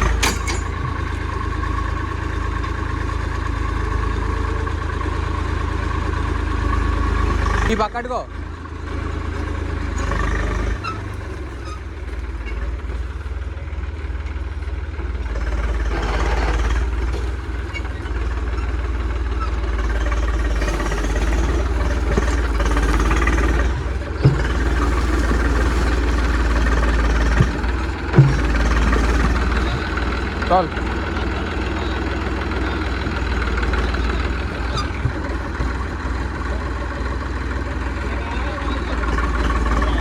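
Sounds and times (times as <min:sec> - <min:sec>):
tractor diesel engine rumbling: 0:00.0 - 0:40.0
short knocks: 0:20.2 - 0:31.0.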